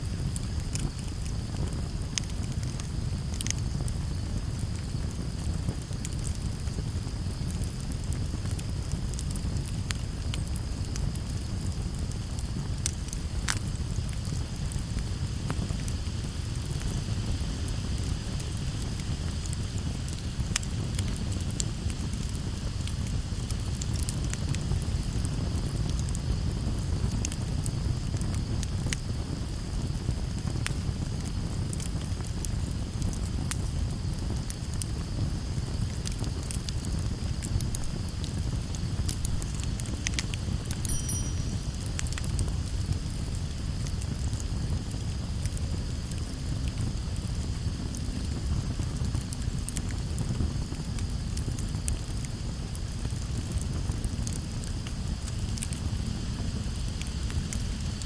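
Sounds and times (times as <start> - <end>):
burning wood crackling and popping: 0.0 - 58.0
campfire flames rushing: 0.0 - 58.0
steady high hiss: 37.1 - 45.8.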